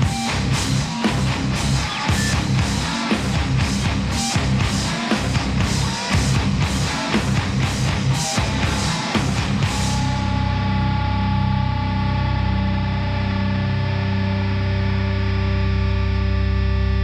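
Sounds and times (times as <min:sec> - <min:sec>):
distorted guitar chord ringing: 0:00.0 - 0:17.0.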